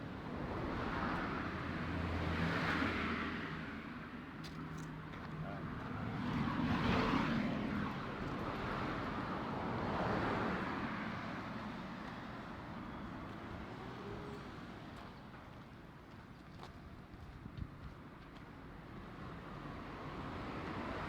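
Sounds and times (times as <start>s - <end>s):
vehicles passing: 0.0s - 15.9s.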